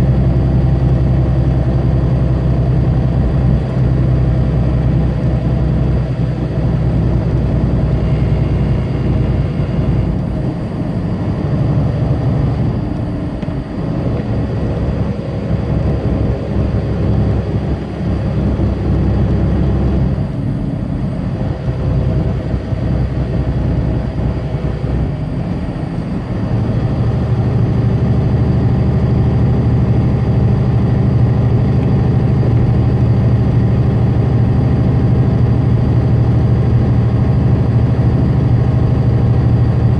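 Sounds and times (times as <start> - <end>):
diesel truck engine with road noise: 0.0 - 39.9.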